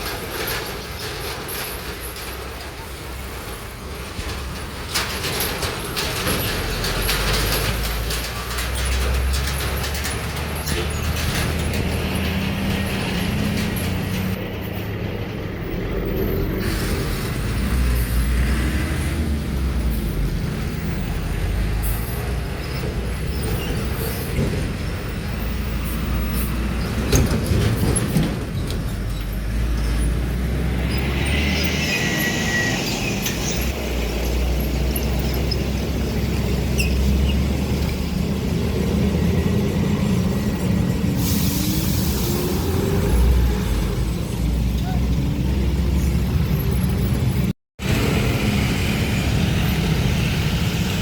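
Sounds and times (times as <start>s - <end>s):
truck diesel engines rumbling: 0.0s - 51.0s
air brakes hissing: 16.4s - 18.3s, 41.1s - 43.4s.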